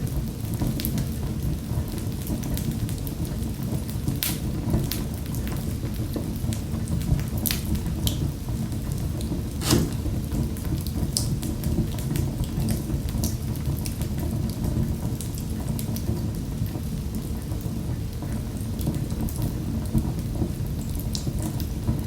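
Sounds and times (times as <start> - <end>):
wood fire crackling and popping: 4.2 - 4.5, 9.6 - 10.4.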